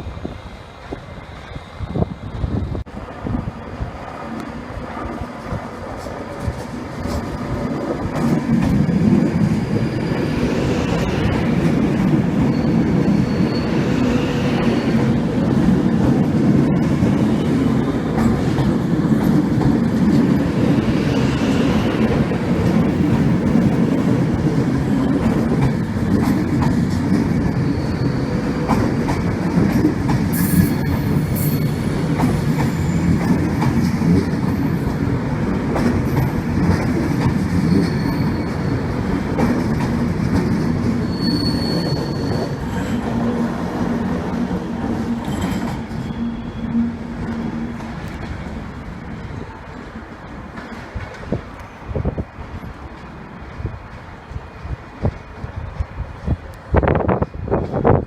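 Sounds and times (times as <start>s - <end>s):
train wheels rumbling: 0.0s - 58.0s
faint wheel squeals: 41.0s - 43.0s.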